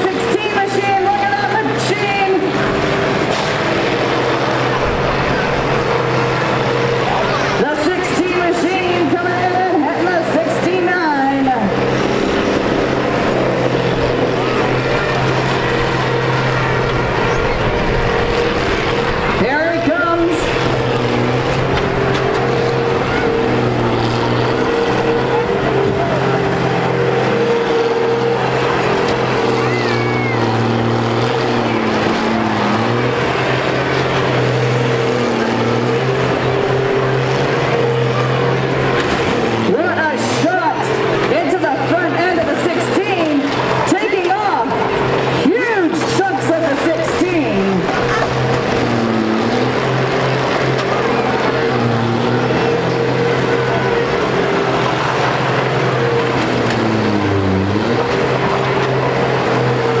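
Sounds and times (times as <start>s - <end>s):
harvester diesel engines droning: 0.0s - 60.0s.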